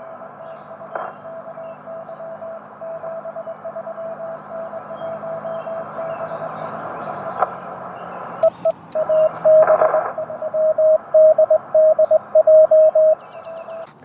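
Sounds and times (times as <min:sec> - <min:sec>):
sharp clicks: 0:08.4 - 0:09.1
morse code beeps: 0:08.4 - 0:13.8.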